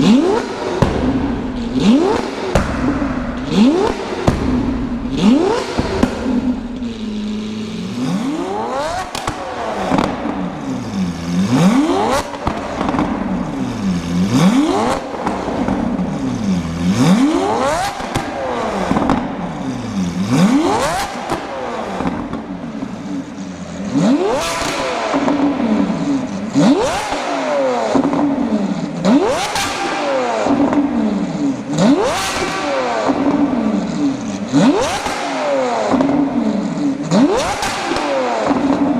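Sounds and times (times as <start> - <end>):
sports car engine revving: 0.0 - 38.9
exhaust pops and crackles: 0.7 - 10.4, 11.2 - 16.0, 17.6 - 19.4.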